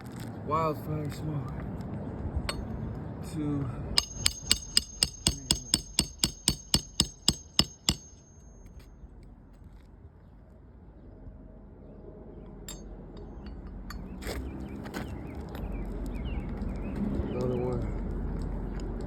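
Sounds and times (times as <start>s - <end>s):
hammer striking nail: 2.5s - 2.8s, 4.0s - 8.9s.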